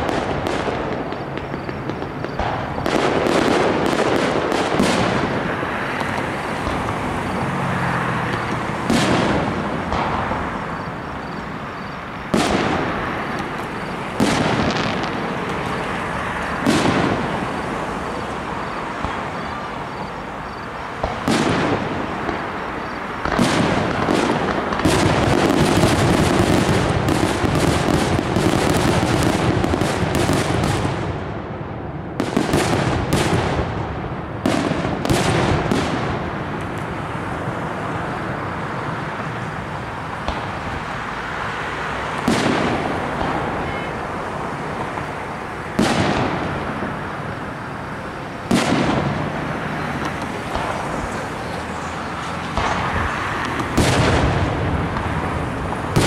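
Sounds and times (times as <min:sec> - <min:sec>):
firework shells bursting: 0:00.0 - 0:07.1
firework crackle: 0:00.0 - 0:31.4, 0:32.1 - 0:56.0.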